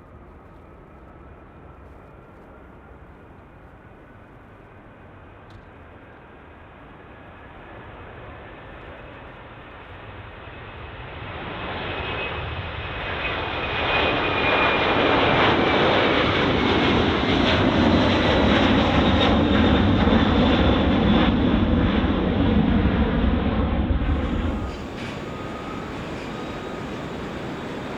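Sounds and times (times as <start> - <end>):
jet airliner engine roar: 0.4 - 27.9.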